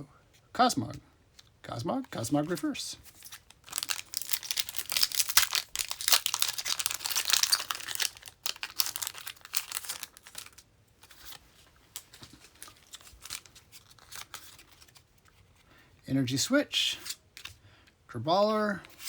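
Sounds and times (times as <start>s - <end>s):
foil wrapper tearing and crinkling: 3.1s - 11.4s.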